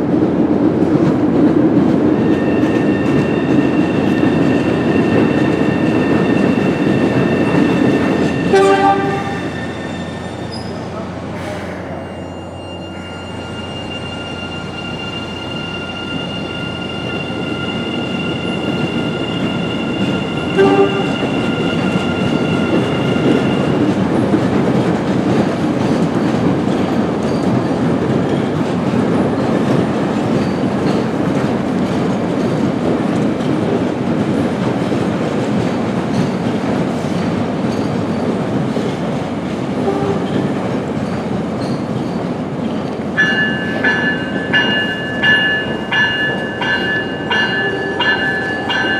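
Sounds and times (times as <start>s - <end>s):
train rumbling on rails: 0.0s - 48.9s
train horn toots: 8.2s - 10.3s, 19.0s - 23.8s, 39.8s - 40.6s.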